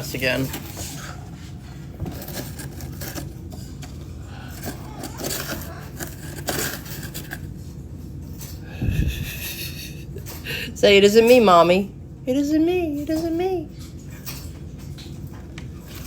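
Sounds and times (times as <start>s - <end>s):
parrot chewing wood: 0.0s - 7.8s.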